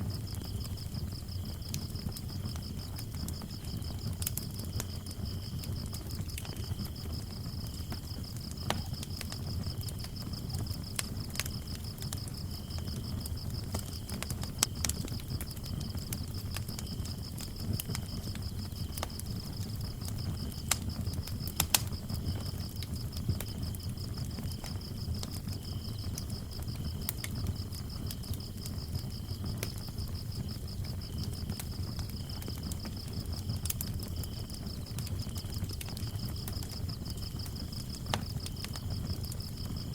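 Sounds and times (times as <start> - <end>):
flames rumbling: 0.0 - 39.9
lower-pitched cricket chirping: 0.0 - 39.9
wood fire crackling and popping: 0.0 - 39.9.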